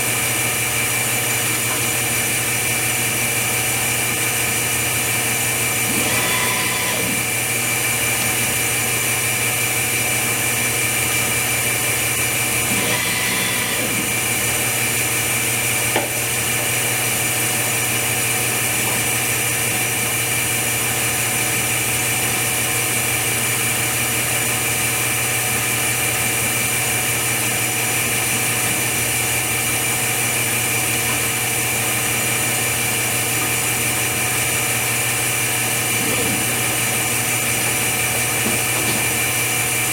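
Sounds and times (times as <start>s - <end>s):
machine drone with high whine: 0.0s - 15.8s.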